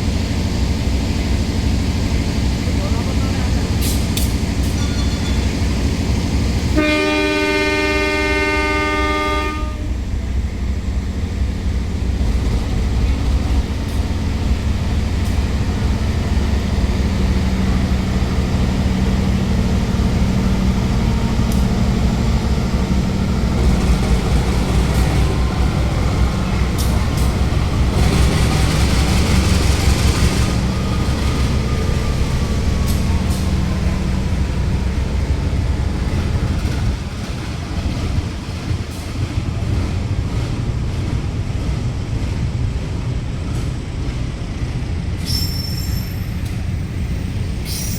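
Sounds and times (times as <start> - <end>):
diesel locomotive engine rumble: 0.0 - 47.9
train horn: 6.8 - 10.0.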